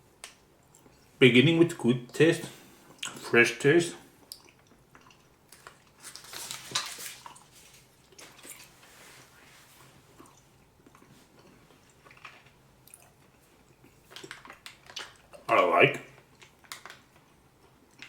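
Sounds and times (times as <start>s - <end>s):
chewing toffee: 4.2s - 8.8s, 10.1s - 15.5s.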